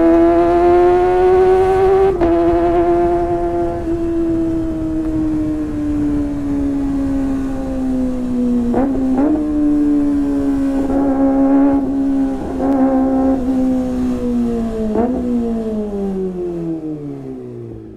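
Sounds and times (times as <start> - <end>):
high-revving motorcycle engine: 0.0 - 17.9.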